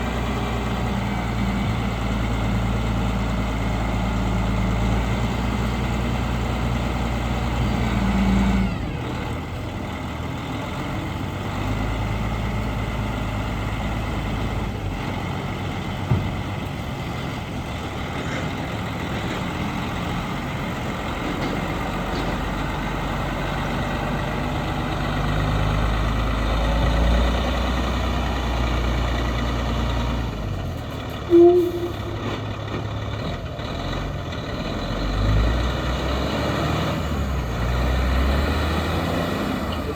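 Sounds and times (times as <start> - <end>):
truck diesel engine droning: 0.0 - 39.9
short loud pitched sound: 31.3 - 32.2.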